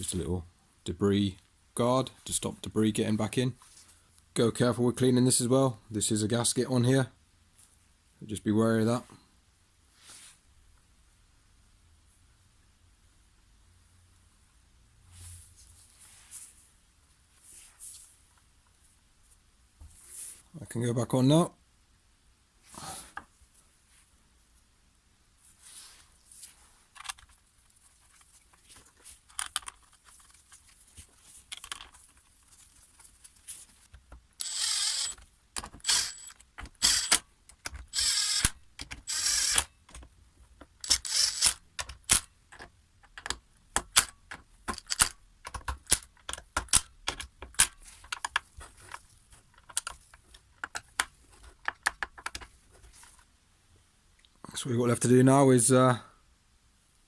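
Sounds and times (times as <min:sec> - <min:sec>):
short rasping bursts: 0:34.4 - 0:35.2, 0:35.8 - 0:37.2, 0:37.9 - 0:39.6, 0:40.9 - 0:41.6.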